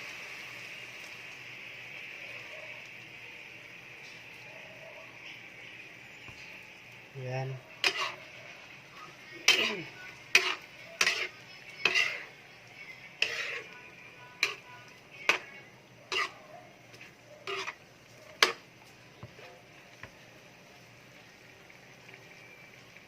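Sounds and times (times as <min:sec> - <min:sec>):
utensil knocking and scraping pan: 0:07.8 - 0:08.2, 0:09.5 - 0:12.3.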